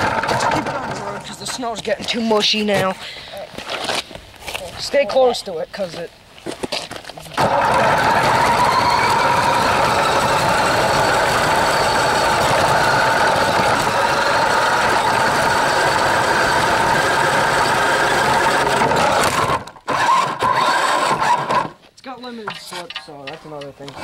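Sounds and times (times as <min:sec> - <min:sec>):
rc car motor whine: 0:07.4 - 0:21.8.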